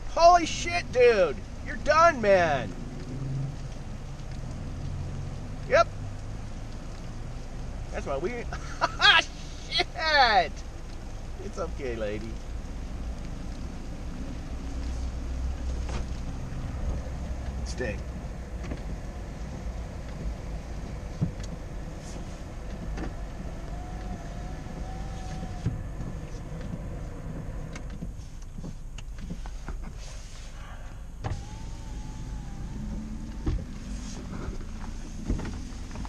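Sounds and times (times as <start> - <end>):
car engine idling: 3.6 - 36.0.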